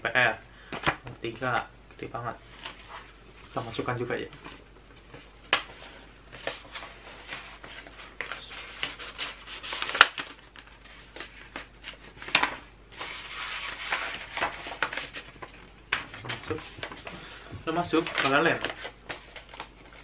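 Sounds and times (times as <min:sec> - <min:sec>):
paper rustling and crinkling: 0:02.4 - 0:20.0
sharp paper snaps: 0:08.8 - 0:10.7.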